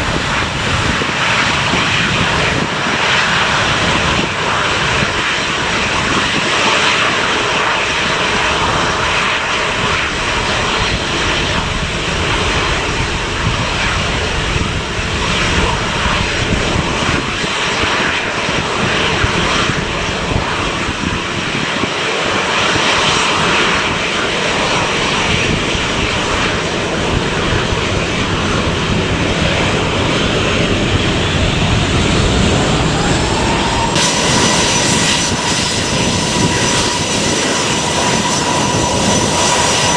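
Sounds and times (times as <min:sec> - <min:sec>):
jet engines running loudly: 0:00.0 - 0:39.9
rising engine whine: 0:11.5 - 0:17.3, 0:18.6 - 0:23.7, 0:24.5 - 0:39.9.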